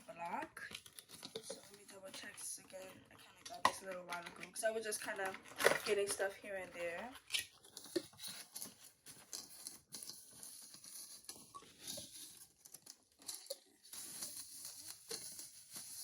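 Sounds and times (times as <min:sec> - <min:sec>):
packaging rustling and crinkling: 0:00.0 - 0:16.0
packaging tearing: 0:07.2 - 0:16.0.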